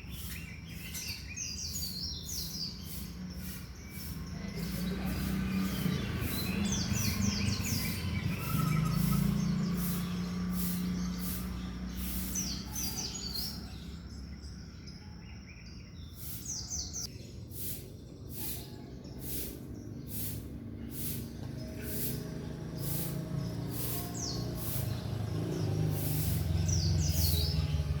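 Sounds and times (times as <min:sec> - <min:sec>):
bird singing high notes: 0:05.7 - 0:13.5, 0:19.4 - 0:28.0.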